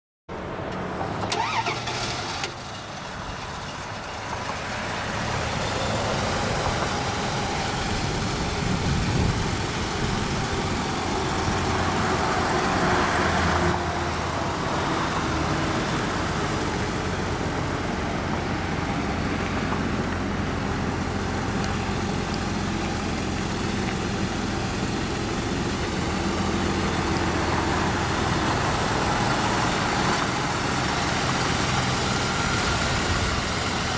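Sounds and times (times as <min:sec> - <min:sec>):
engine cranking and starting: 0:01.0 - 0:08.8
engine idling: 0:01.1 - 0:33.9.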